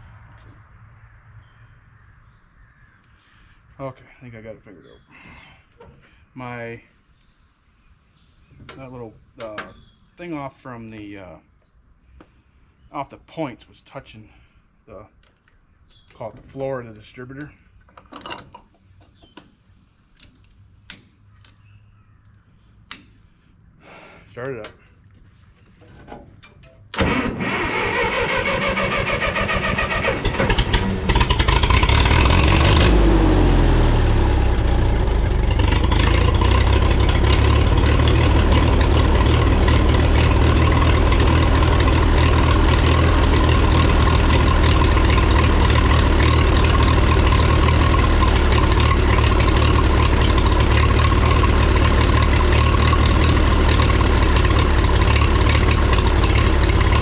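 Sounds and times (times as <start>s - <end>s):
tractor engine running: 25.9s - 57.0s
starter motor cranking: 27.0s - 33.0s.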